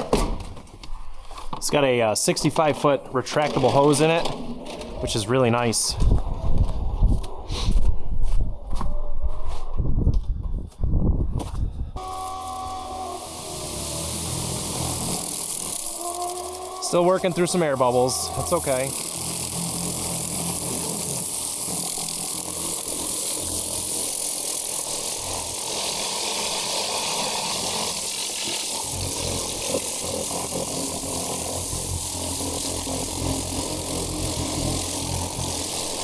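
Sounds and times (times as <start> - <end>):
pump motor humming: 12.0 - 36.0
water spray hissing: 12.0 - 36.0.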